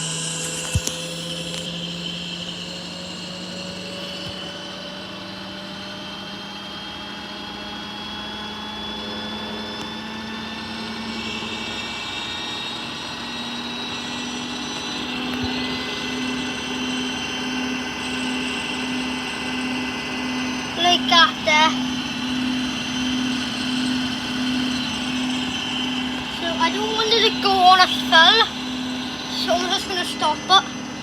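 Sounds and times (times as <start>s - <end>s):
washing machine motor whine: 0.0s - 31.0s.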